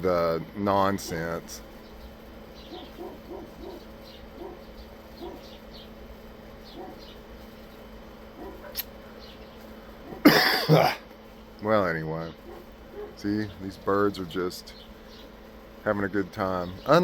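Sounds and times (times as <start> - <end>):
birds chirping faintly: 0.0 - 17.0
steady low hum: 0.0 - 17.0
sharp click: 8.7 - 9.0.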